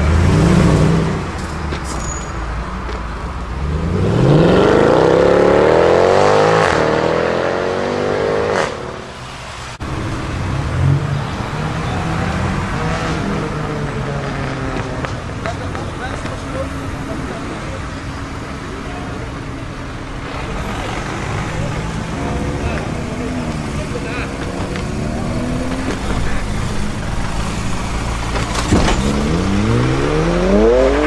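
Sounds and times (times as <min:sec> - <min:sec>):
car engine accelerating hard: 0:00.0 - 0:01.4, 0:03.5 - 0:09.1, 0:20.2 - 0:31.0.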